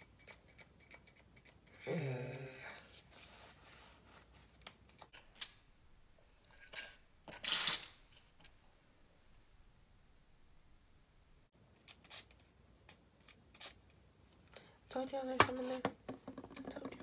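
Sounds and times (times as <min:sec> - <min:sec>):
voice murmuring: 0:01.8 - 0:02.9.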